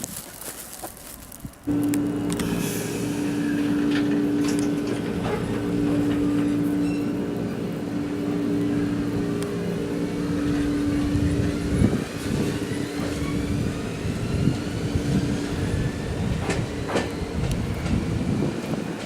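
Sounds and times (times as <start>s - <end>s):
wheels knocking over rail joints: 0.0s - 13.2s
steady hum: 1.7s - 12.0s
electric train motor whine: 1.7s - 19.0s.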